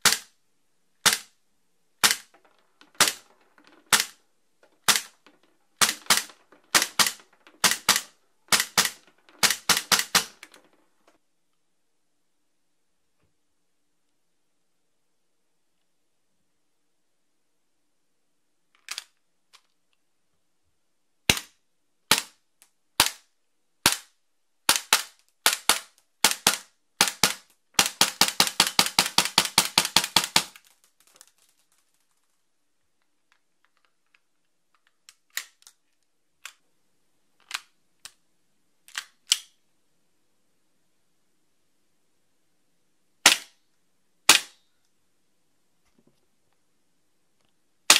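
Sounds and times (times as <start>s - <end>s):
airsoft pistol shots: 2.0s - 2.3s, 5.8s - 10.4s.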